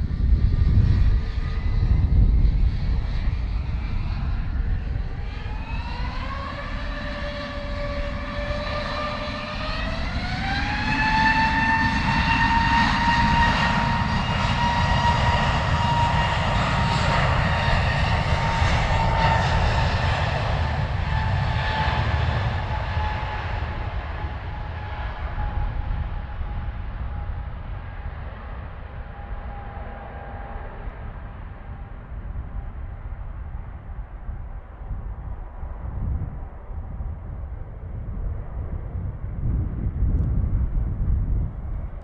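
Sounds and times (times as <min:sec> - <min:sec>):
low rumble: 0:14.6 - 0:42.0.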